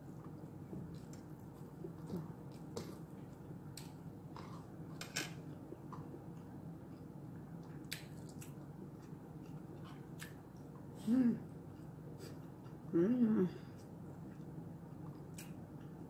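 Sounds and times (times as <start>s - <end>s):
steady low hum: 0.0s - 16.0s
chewing and mouth clicks: 0.2s - 4.6s, 5.9s - 10.9s, 13.8s - 16.0s.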